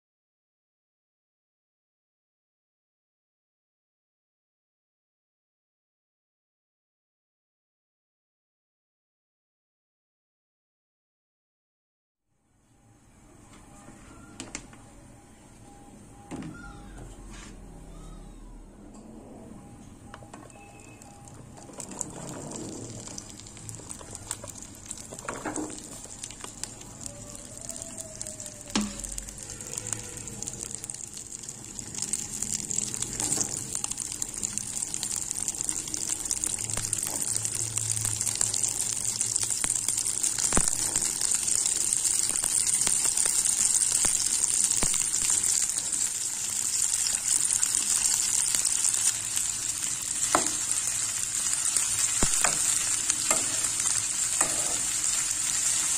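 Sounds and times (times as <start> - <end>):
okra sizzling in oil: 20.5 - 55.9.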